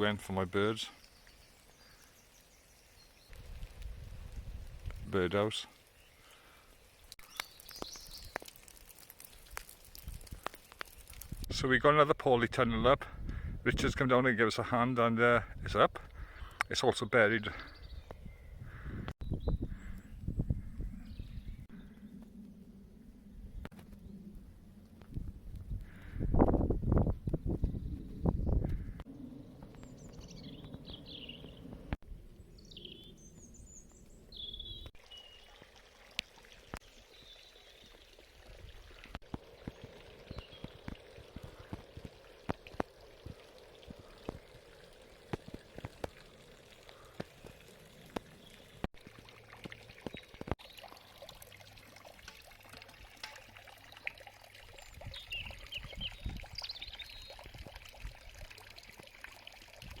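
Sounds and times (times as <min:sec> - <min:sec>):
water trickling: 0:01.0 - 0:11.6, 0:34.9 - 1:00.0
small scattered clicks: 0:07.3 - 0:11.4
bird chirps: 0:29.3 - 0:31.8, 0:32.5 - 0:35.6, 0:54.8 - 0:57.4.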